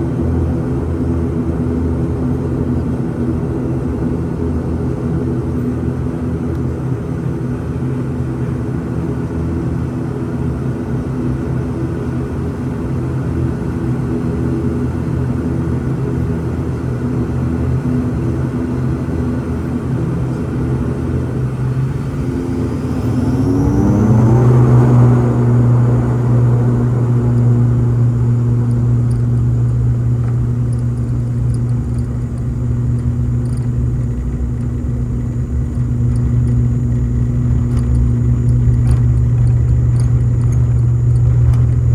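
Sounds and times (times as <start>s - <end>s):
propeller engine drone: 0.0s - 41.9s
high turbine whine: 19.0s - 41.9s.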